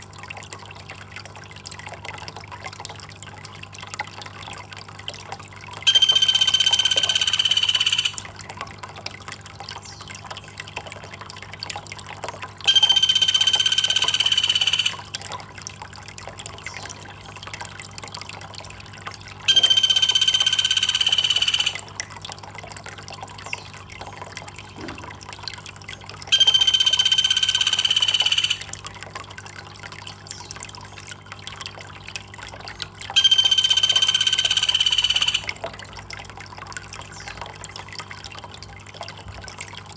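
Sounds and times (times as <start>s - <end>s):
water trickling and dripping: 0.0s - 39.9s
high-pitched buzzing call: 5.9s - 8.2s, 12.7s - 15.3s, 19.5s - 21.9s, 26.3s - 28.7s, 33.2s - 35.6s.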